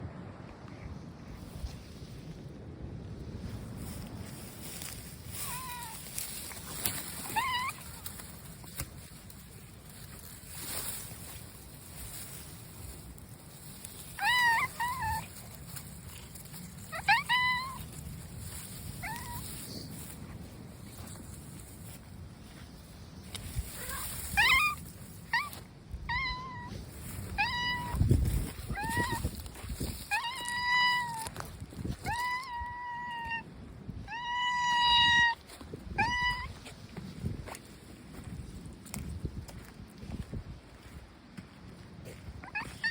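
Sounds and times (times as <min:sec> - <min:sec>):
low background noise: 0:00.0 - 0:42.6
cat meowing: 0:05.4 - 0:08.2, 0:14.1 - 0:18.0, 0:19.0 - 0:19.9, 0:23.7 - 0:31.4, 0:32.0 - 0:36.6, 0:42.4 - 0:42.9.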